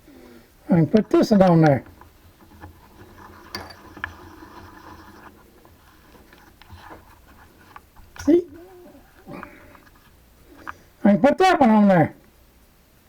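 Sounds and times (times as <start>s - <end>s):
metal parts clicking and scraping: 0.9s - 10.9s.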